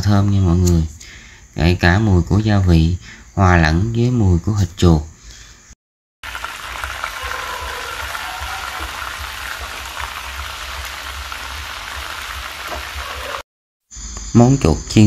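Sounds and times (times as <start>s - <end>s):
meat sizzling in a frying pan: 6.2s - 13.4s.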